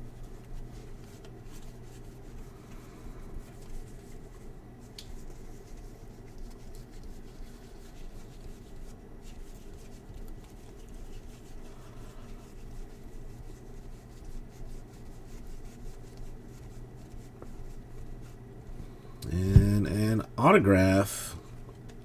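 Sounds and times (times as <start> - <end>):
low steady hum: 18.8 - 21.8.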